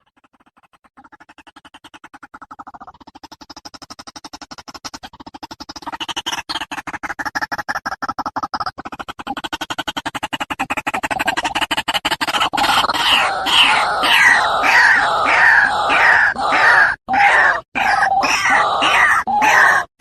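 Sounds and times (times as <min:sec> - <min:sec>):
harsh croaking bird calls: 0:11.1 - 0:20.0
bird fast pulsing call: 0:12.3 - 0:20.0.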